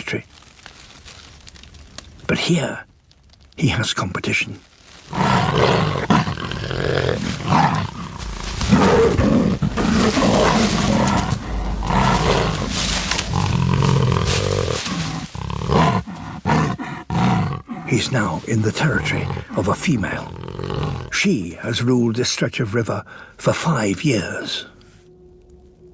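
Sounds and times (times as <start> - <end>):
jaguars roaring: 5.0 - 21.8.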